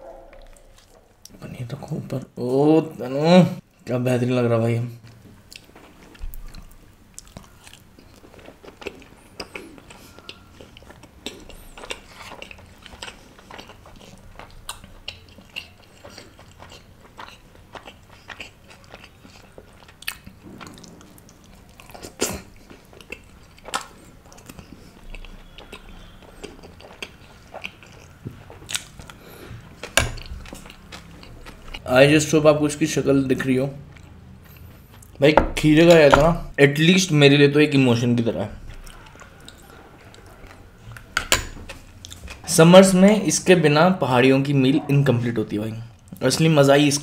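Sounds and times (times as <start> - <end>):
chewing and mouth smacks: 0.1 - 1.4, 5.0 - 31.9, 33.8 - 35.2, 38.6 - 42.5.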